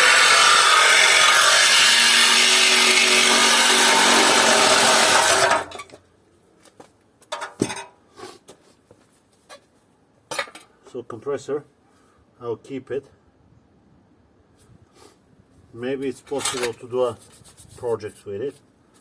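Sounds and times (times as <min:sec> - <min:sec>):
power tool cutting metal: 0:00.0 - 0:05.8.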